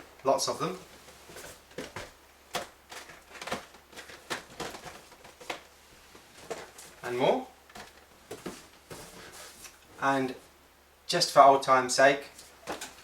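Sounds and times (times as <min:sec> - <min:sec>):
packaged toys clicking and knocking: 0:01.7 - 0:05.7.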